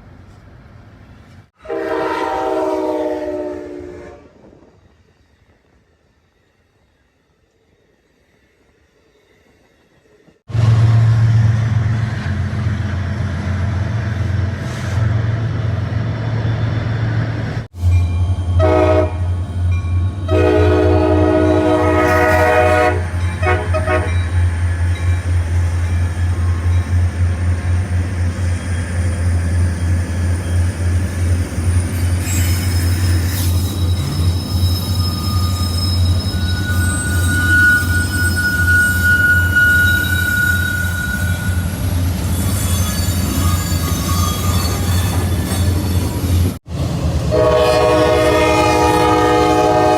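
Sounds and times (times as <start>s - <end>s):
train rumbling past: 0.0s - 49.9s
train horn blasts: 1.6s - 4.4s, 18.6s - 19.4s, 20.2s - 24.4s, 47.3s - 49.9s
wheels squealing on rails: 15.8s - 46.6s.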